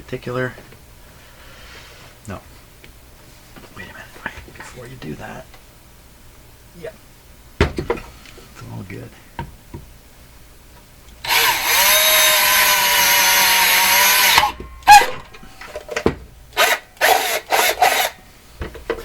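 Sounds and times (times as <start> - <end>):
electric drill drilling: 11.2 - 15.8, 16.6 - 18.2.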